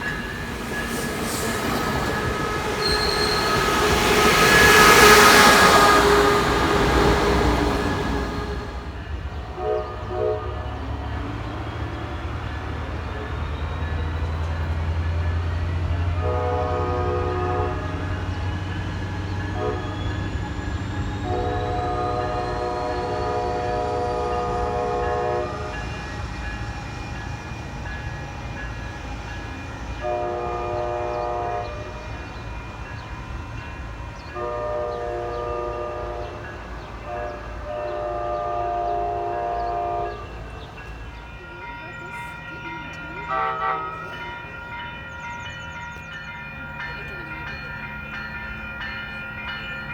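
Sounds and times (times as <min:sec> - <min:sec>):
train rumbling: 0:00.0 - 0:49.9
train horn blasts: 0:01.3 - 0:11.4, 0:15.8 - 0:20.5, 0:21.2 - 0:26.4, 0:29.9 - 0:32.3, 0:34.2 - 0:40.9, 0:43.2 - 0:44.5.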